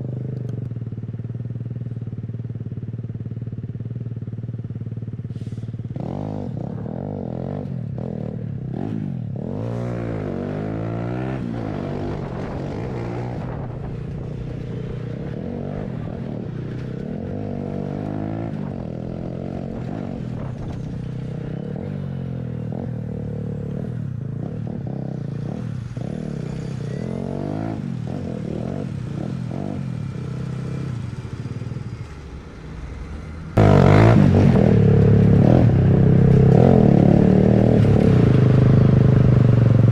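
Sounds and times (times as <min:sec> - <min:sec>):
motorcycle engine revving: 0:00.0 - 0:39.9
loud rush of noise: 0:31.1 - 0:37.6.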